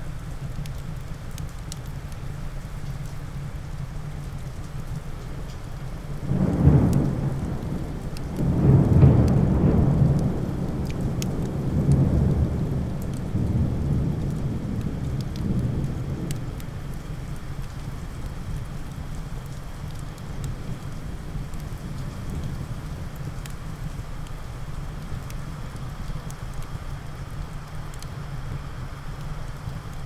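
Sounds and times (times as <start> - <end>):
steady rain: 0.0 - 30.0
light sharp ticks: 0.3 - 2.2, 2.8 - 30.0
thunder rumbling: 6.0 - 24.2.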